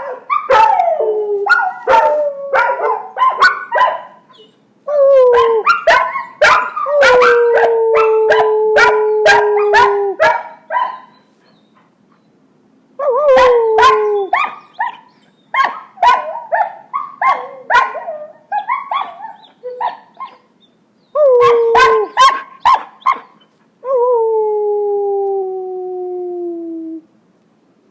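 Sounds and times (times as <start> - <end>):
puppies barking: 1.5 - 4.6, 5.3 - 11.7, 13.8 - 20.5, 21.4 - 23.4
puppies howling: 13.0 - 20.5, 21.2 - 23.4
puppies yipping: 14.2 - 20.5, 21.8 - 23.6.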